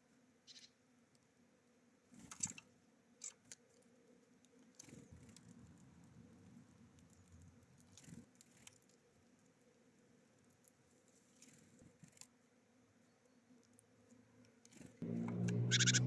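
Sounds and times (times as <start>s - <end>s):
low rumble: 15.0s - 16.0s
birds tapping at seed feeder: 15.1s - 16.0s.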